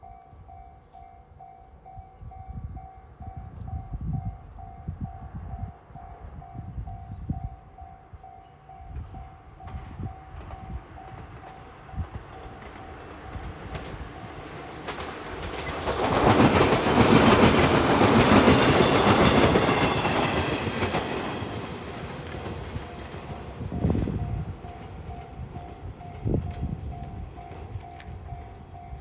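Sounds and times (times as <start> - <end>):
train wheels clattering: 9.7 - 23.6
level crossing warning bell: 22.8 - 29.0.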